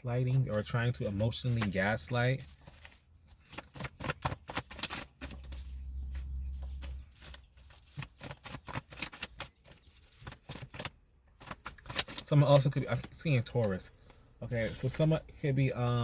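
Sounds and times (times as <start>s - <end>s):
cards being shuffled: 2.5s - 13.8s.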